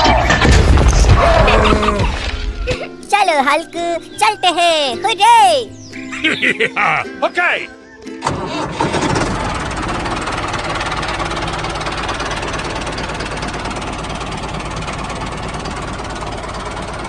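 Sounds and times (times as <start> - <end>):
small engine knocking rattle: 8.2 - 17.0.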